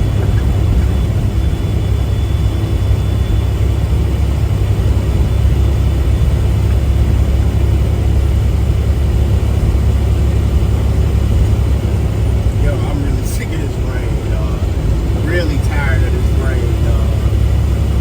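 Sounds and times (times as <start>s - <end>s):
truck engine and road drone: 0.0s - 18.0s.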